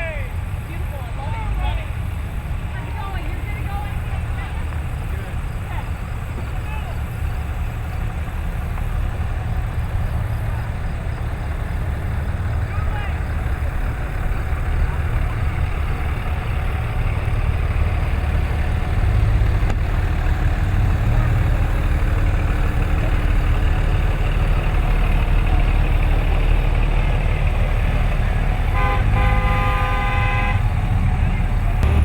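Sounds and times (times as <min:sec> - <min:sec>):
pickup trucks rumbling past: 0:00.0 - 0:32.0
truck horn honking: 0:28.1 - 0:32.0.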